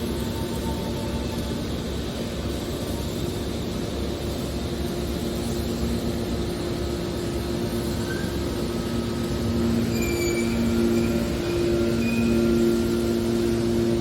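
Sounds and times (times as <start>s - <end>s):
hydraulic baler machine drone: 0.0s - 14.0s.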